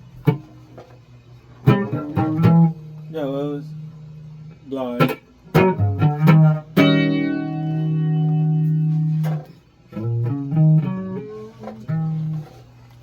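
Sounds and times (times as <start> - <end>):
electric guitar notes: 1.6 - 12.6.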